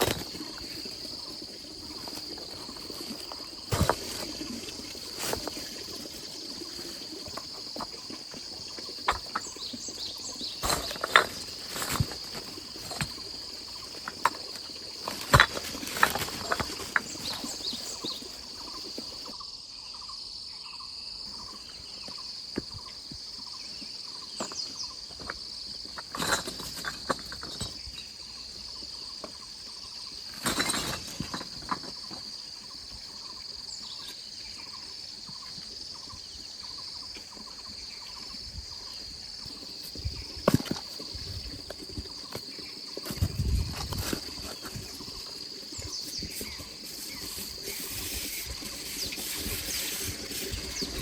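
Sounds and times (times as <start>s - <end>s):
insect chorus: 0.0s - 51.0s
knocks and clatters: 24.4s - 28.0s, 30.3s - 32.4s.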